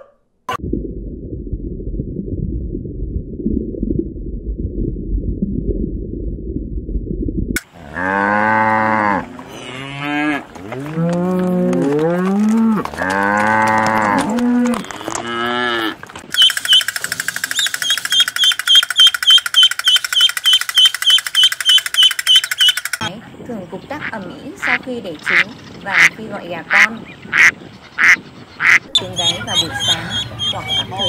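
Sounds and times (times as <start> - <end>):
low rumble: 0.6 - 7.6
cattle mooing: 7.8 - 16.0
ducklings peeping: 16.4 - 23.1, 24.0 - 31.0.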